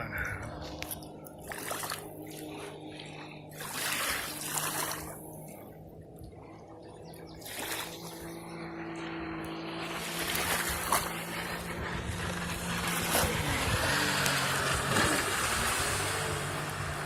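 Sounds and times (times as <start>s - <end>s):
jet ski engine humming: 0.0s - 17.0s
rushing water: 9.8s - 17.0s.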